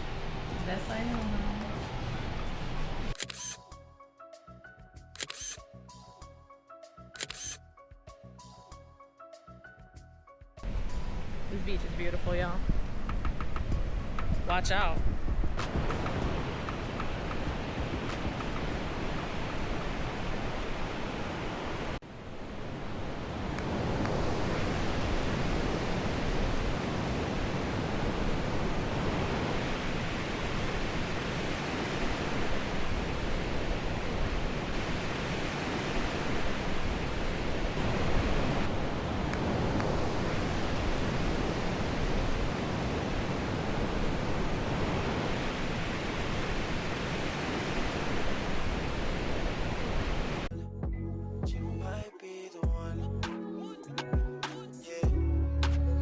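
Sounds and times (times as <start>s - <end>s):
wind on microphone: 10.6s - 50.5s
ocean surf breaking: 15.5s - 50.5s.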